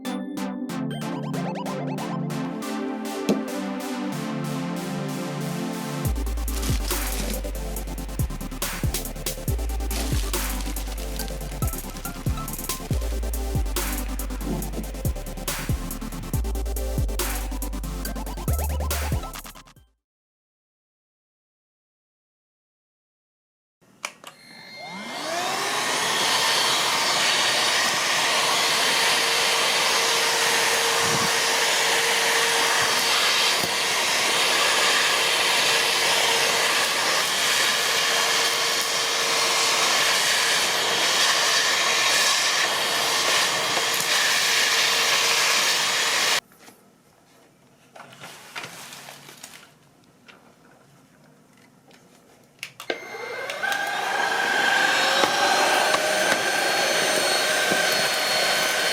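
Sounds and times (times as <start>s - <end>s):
stick vacuum motor whining: 24.2s - 46.4s, 52.8s - 58.9s.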